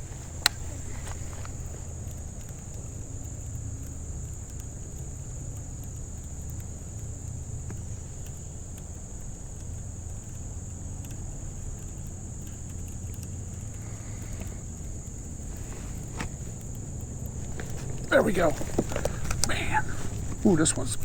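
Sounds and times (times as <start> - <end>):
faint clicks: 0.0 - 21.0
high-pitched hiss: 17.2 - 21.0.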